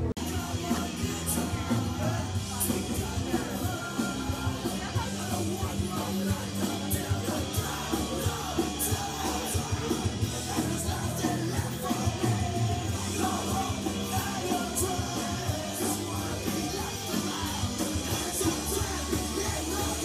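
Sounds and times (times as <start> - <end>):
punk rock music: 0.0 - 20.0
shouted vocals: 0.0 - 20.0.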